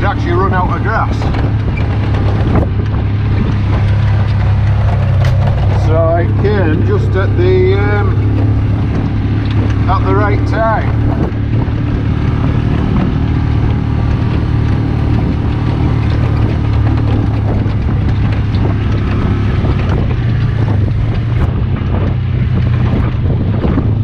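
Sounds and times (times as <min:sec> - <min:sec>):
utility vehicle engine running: 0:00.0 - 0:24.0
wind noise on microphone: 0:00.0 - 0:24.0.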